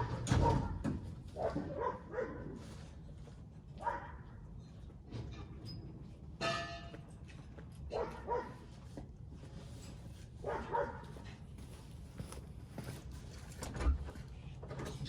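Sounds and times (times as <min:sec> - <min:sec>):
dog barking: 0:00.0 - 0:00.8, 0:01.4 - 0:02.6, 0:03.8 - 0:04.3, 0:07.9 - 0:08.7, 0:10.4 - 0:11.2.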